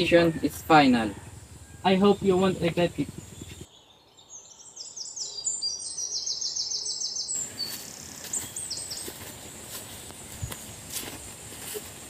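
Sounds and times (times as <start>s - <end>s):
steady outdoor hiss: 0.0s - 12.0s
high bird chirps: 1.5s - 9.2s.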